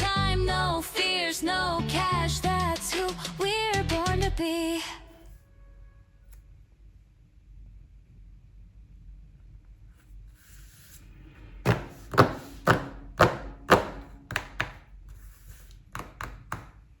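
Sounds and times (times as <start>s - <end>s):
sharp knocks: 11.7s - 14.8s.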